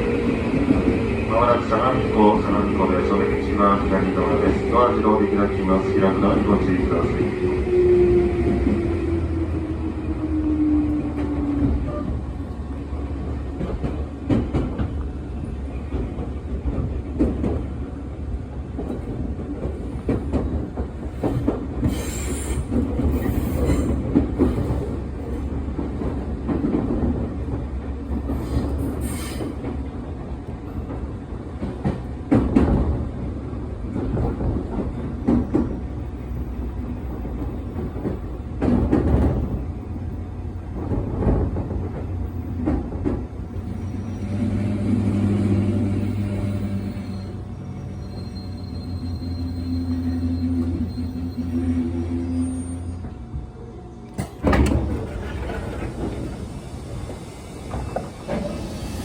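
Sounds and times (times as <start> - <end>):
train rumbling on rails: 0.0 - 59.0
high wheel squeals: 43.6 - 53.2.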